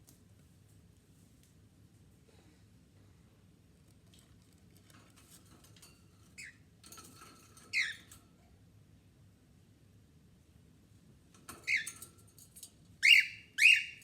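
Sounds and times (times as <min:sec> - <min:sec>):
soft scratching and clicking: 0:03.8 - 0:08.3.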